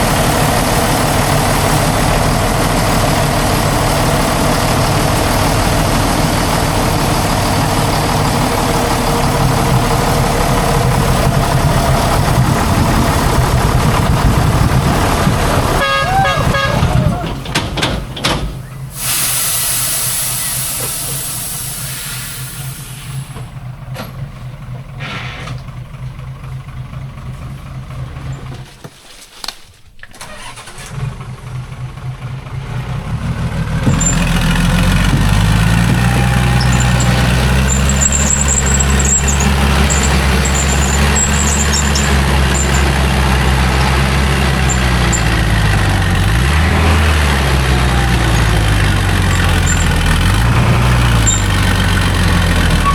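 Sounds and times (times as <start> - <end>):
truck engine idling: 0.0 - 29.0, 29.9 - 52.9.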